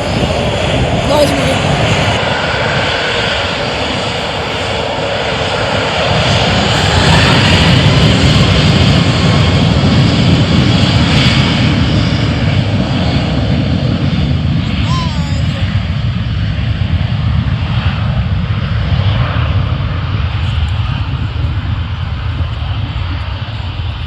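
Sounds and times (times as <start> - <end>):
airliner engines running: 0.0 - 24.0.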